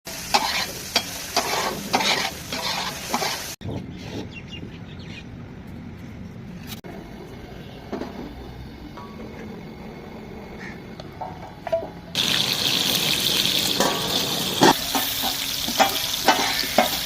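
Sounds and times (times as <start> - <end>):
oil sizzling: 0.1 - 3.6, 11.8 - 17.0
spatula scraping a pan: 0.3 - 3.6, 13.8 - 17.0.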